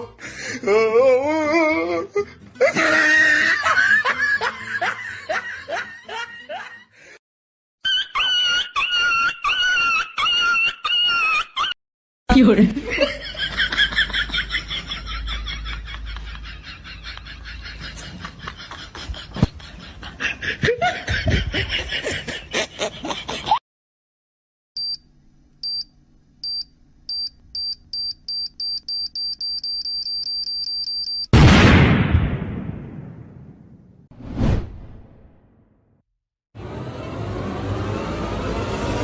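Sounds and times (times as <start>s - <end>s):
laughter: 2.2s - 7.2s, 7.8s - 11.8s, 12.6s - 23.6s
bomb timer beeping: 25.6s - 31.3s
rumbling explosion: 31.4s - 35.5s.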